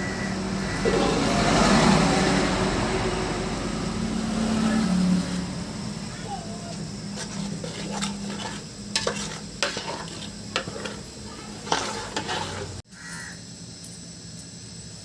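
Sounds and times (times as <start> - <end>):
steady background noise: 0.0 - 15.0
spoon scraping a pan: 0.6 - 2.9, 4.4 - 12.8
food sizzling in a pan: 6.0 - 12.8.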